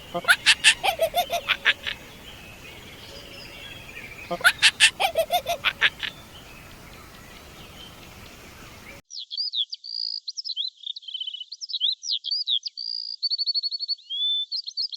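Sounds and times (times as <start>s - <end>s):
distant bird chirps: 0.0s - 9.0s
songbird singing trills: 0.0s - 9.3s.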